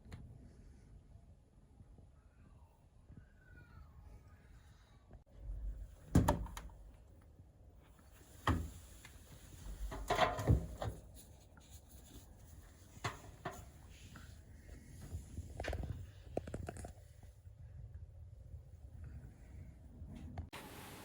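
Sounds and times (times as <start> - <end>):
knocks and clunks: 9.7 - 11.1.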